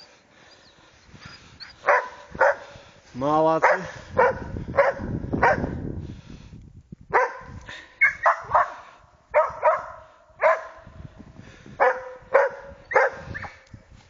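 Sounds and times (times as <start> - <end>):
dogs barking: 1.8 - 2.8, 3.6 - 5.8, 7.1 - 10.9, 11.8 - 13.6.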